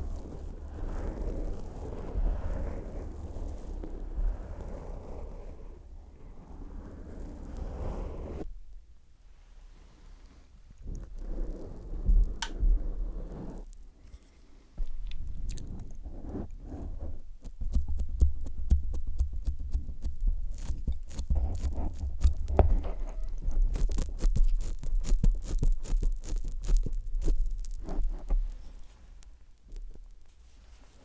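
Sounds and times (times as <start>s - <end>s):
microphone being touched: 10.8s - 13.7s, 14.8s - 31.0s.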